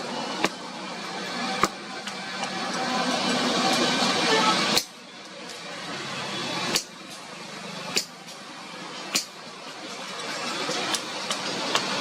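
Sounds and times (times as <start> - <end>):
street traffic hum: 0.0 - 12.0
hammer striking iron on anvil: 4.7 - 5.0, 6.7 - 7.0, 7.9 - 8.4, 9.1 - 9.4.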